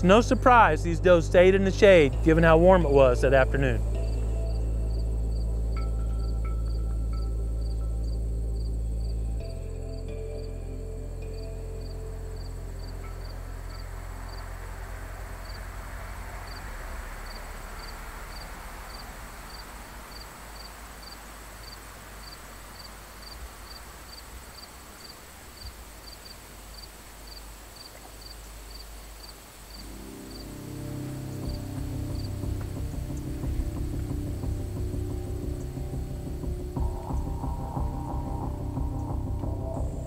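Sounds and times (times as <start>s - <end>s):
low background music: 0.0s - 20.8s, 29.8s - 40.0s
insects chirping: 0.0s - 40.0s
steady high insect buzz: 3.5s - 40.0s.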